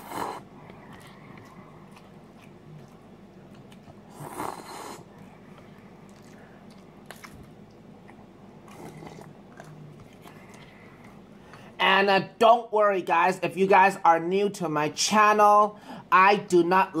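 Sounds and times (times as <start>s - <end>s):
person chewing noodles: 0.0s - 11.8s.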